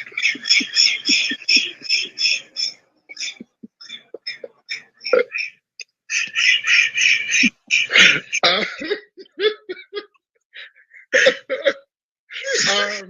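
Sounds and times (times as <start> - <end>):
muffled vocal sounds: 0.0 - 5.5, 6.1 - 9.8, 12.4 - 13.0
person coughing: 7.7 - 10.0, 11.2 - 13.0.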